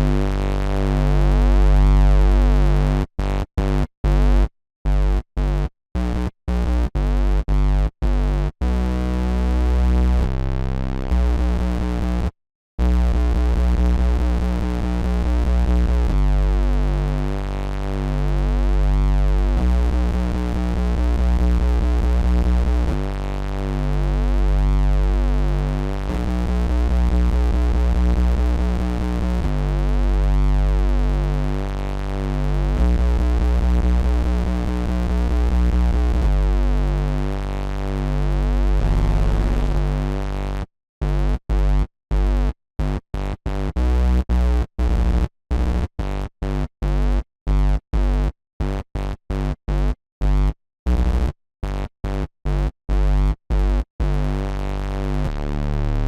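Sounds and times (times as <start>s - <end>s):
electro house synth music: 38.6s - 40.2s.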